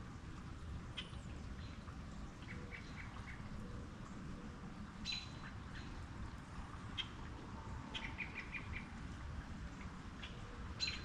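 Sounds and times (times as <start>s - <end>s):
steady background hiss: 0.0s - 11.0s
small birds chirping: 7.9s - 9.0s, 9.8s - 11.0s.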